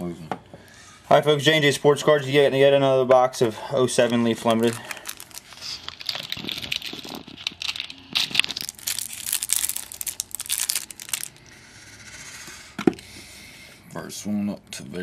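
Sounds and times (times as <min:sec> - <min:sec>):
packaging tearing and crinkling: 0:04.0 - 0:11.4.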